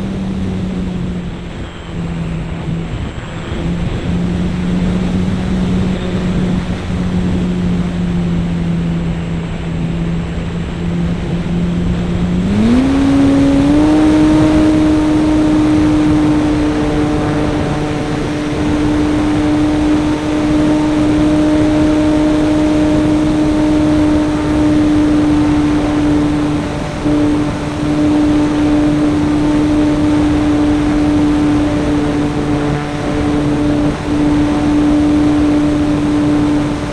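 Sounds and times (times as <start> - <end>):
air rushing over microphone: 0.0 - 36.9
model airplane engine running: 0.0 - 36.9.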